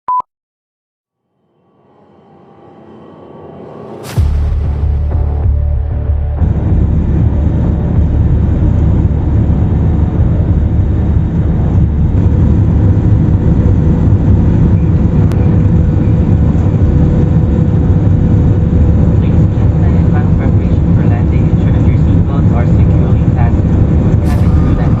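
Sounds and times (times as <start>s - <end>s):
faint steady whine: 4.9s - 25.0s
airliner cabin noise: 6.0s - 25.0s.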